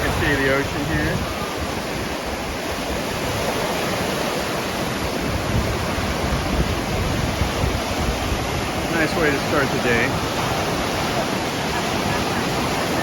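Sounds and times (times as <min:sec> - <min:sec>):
surf washing onto beach: 0:00.0 - 0:13.0.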